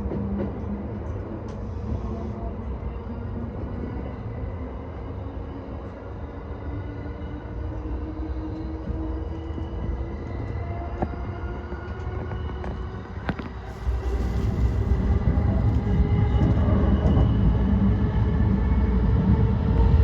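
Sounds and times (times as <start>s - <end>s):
heavy low rumble: 13.5s - 19.4s.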